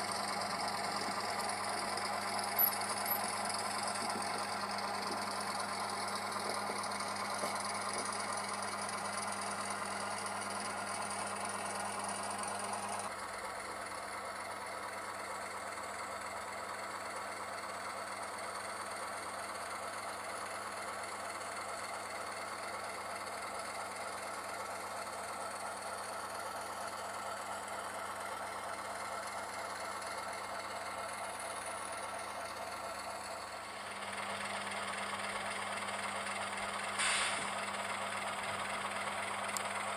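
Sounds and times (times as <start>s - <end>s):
model train diesel engine sound: 0.0s - 39.9s.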